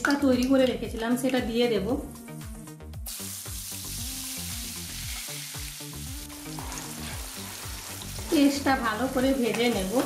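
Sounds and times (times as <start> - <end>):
background music: 0.0 - 10.0
hot oil sizzling: 3.0 - 10.0.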